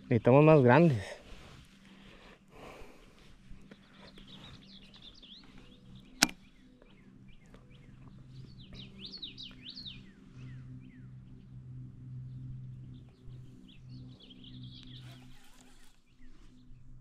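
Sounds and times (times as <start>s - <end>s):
faint low hum: 0.0s - 17.0s
small birds chirping: 0.0s - 17.0s
sharp click: 6.2s - 6.4s.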